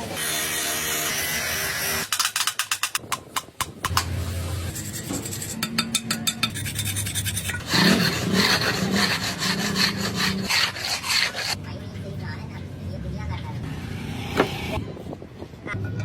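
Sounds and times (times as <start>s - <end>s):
hand file rasping: 4.7s - 11.6s.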